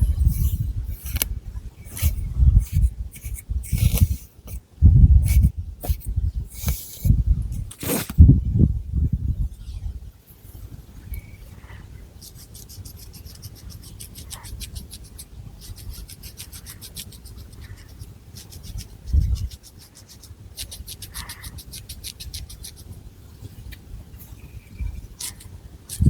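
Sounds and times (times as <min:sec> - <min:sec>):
fingernails scratching through hair: 0:01.9 - 0:04.6, 0:07.6 - 0:08.2.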